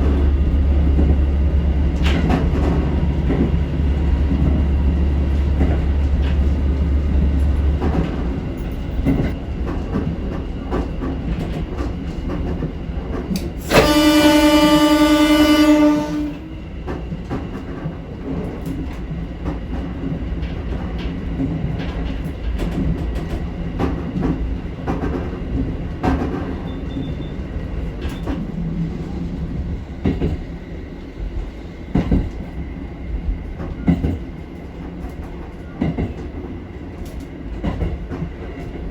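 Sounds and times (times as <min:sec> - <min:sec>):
diesel railcar engine drone: 0:00.0 - 0:38.9
train horn: 0:13.6 - 0:16.7.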